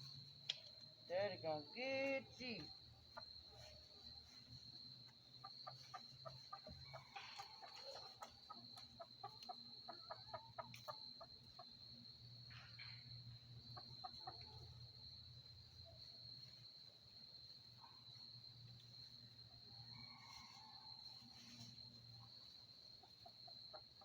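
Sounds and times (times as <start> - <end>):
crickets trilling: 0.0 - 24.0
chickens clucking: 2.8 - 15.2, 18.6 - 24.0.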